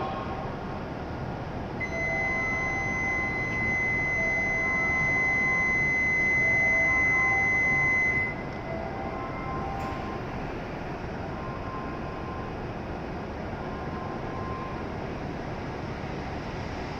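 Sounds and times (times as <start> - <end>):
train humming: 0.0 - 16.9
high-pitched warning buzzer: 1.8 - 8.4.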